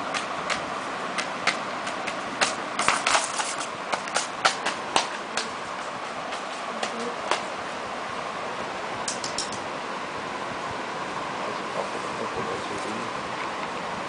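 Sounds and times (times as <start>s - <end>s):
background hiss: 0.0s - 14.0s
sharp clicks and taps: 0.1s - 7.5s, 9.1s - 9.6s.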